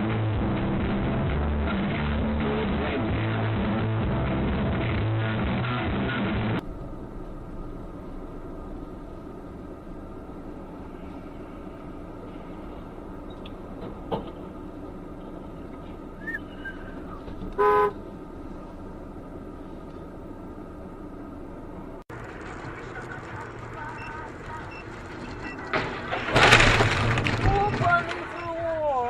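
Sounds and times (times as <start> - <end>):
road traffic noise: 0.0 - 27.2
vehicle horn toot: 17.5 - 18.0.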